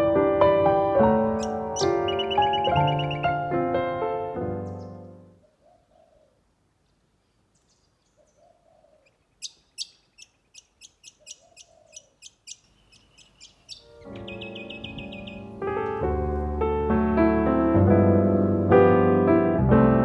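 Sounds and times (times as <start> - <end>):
piano music: 0.0 - 5.4, 13.8 - 20.0
bird hooting: 1.4 - 3.4, 5.4 - 6.4, 8.1 - 15.6
sharp high bird chirps: 1.4 - 3.4, 9.3 - 15.5.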